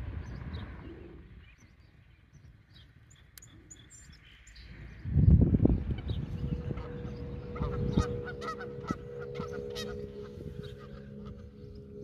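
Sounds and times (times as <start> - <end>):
small birds chirping: 0.0 - 12.0
loud low rumble: 4.7 - 12.0.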